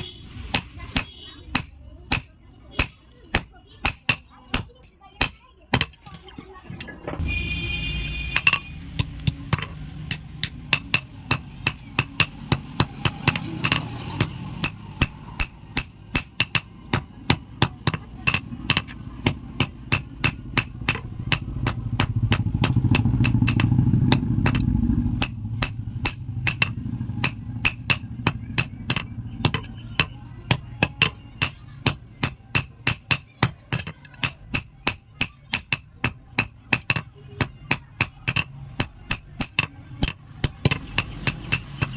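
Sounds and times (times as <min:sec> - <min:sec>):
hammer striking iron on anvil: 0:00.0 - 0:06.0, 0:08.1 - 0:41.9.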